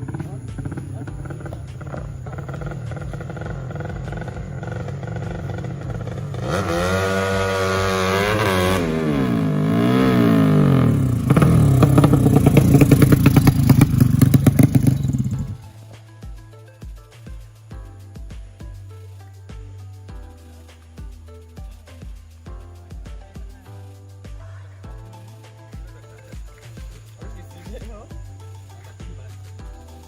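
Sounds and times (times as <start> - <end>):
motorcycle engine revving: 0.0 - 15.7.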